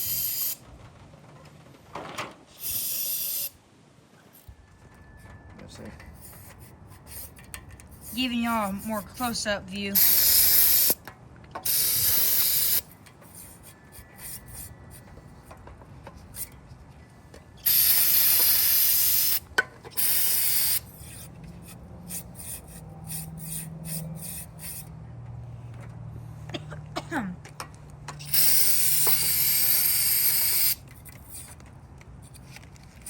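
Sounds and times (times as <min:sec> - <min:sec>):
pressurized spray hissing: 0:02.6 - 0:03.6, 0:10.0 - 0:11.0, 0:11.7 - 0:12.8, 0:17.6 - 0:19.4, 0:20.0 - 0:21.2, 0:22.1 - 0:24.9, 0:28.2 - 0:31.5.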